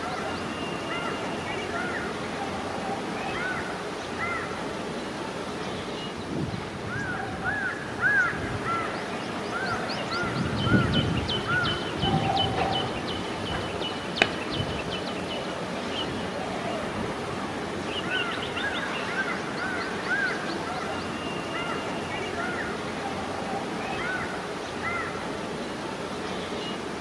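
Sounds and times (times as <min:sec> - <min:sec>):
background hiss: 0:00.0 - 0:27.0
birds chirping: 0:00.0 - 0:27.0.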